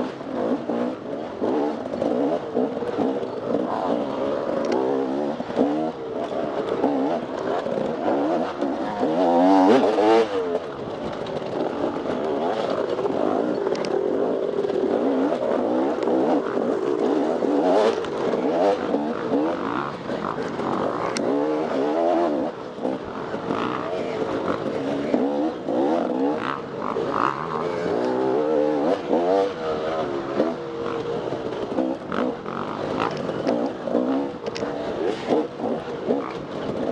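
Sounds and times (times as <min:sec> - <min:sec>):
dirt bike engine revving: 0:00.0 - 0:36.9.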